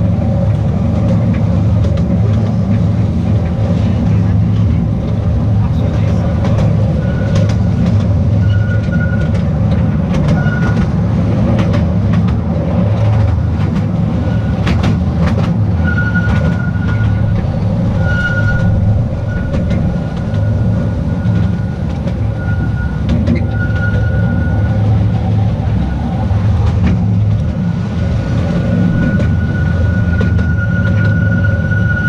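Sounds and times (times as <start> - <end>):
clicks and knocks of train: 0.0 - 32.0
train rumbling on track: 0.0 - 32.0
high wheel squeals: 5.2 - 11.3, 14.0 - 26.0, 28.4 - 32.0.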